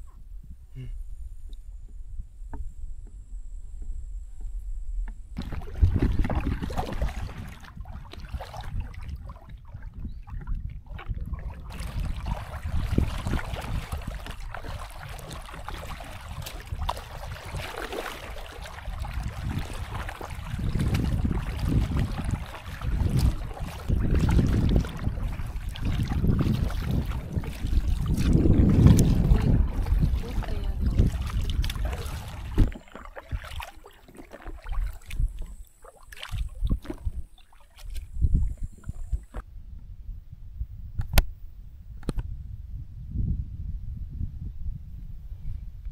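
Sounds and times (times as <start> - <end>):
wind buffeting microphone: 0.0 - 45.9
water splashes: 5.4 - 39.4.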